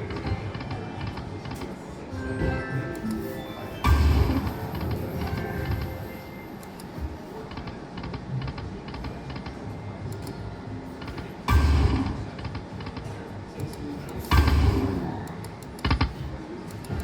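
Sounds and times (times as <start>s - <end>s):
slot machine music: 2.0s - 6.7s
slot machine button clicks: 2.2s - 7.0s.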